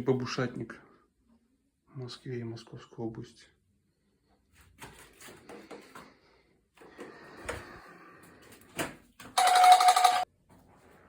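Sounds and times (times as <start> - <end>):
electric bell ringing: 9.4 - 10.3.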